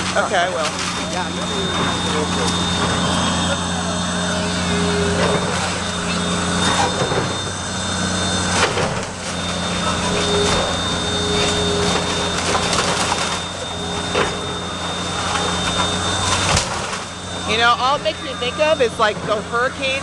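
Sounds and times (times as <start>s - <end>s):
diesel engine running: 0.0s - 20.0s
debris breaking and shifting: 8.4s - 17.2s.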